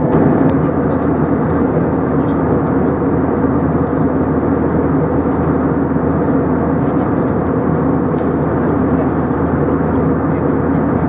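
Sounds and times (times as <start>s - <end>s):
aircraft cabin engine rush: 0.0s - 11.0s
low hum: 0.0s - 11.0s.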